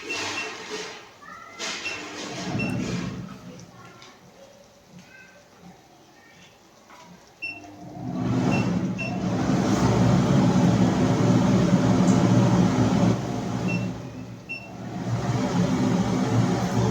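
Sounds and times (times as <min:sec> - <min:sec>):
machine motor humming: 0:07.9 - 0:16.9.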